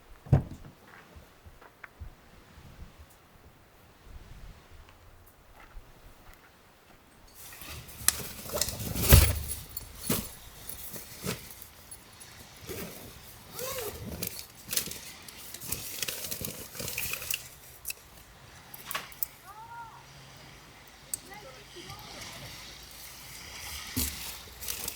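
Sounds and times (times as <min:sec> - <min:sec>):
thump: 0:00.2 - 0:00.8, 0:09.0 - 0:10.4
small hard objects clinking: 0:07.4 - 0:19.4, 0:20.9 - 0:24.9.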